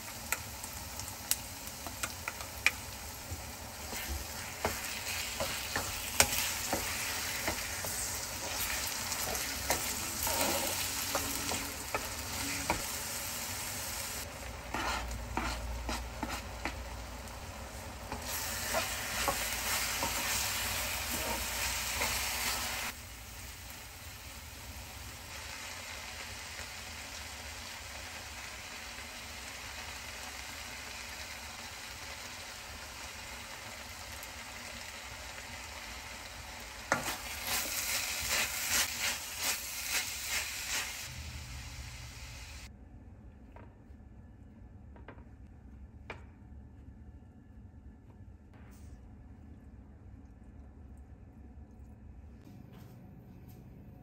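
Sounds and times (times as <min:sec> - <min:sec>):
meat sizzling in a wok: 0:00.0 - 0:42.7
wooden spoon scraping and stirring: 0:01.9 - 0:13.0, 0:14.2 - 0:22.9.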